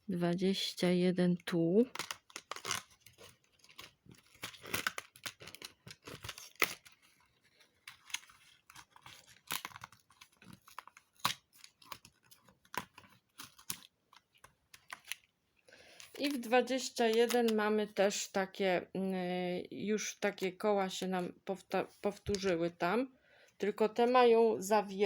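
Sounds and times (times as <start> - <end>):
packaging crinkling: 1.8 - 17.6
cardboard tearing: 1.9 - 13.9.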